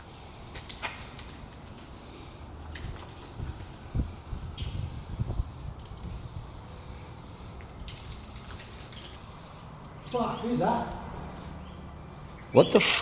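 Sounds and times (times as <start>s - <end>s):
spray paint can hissing: 0.0s - 2.4s, 3.0s - 9.8s.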